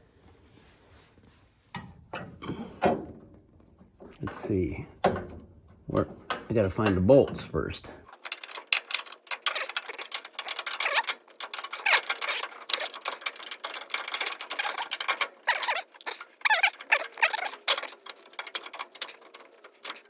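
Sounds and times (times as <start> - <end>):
metal battery holder rattling: 4.1 - 20.0
quick irregular clicks: 8.0 - 20.0
short squeaks: 8.2 - 20.0.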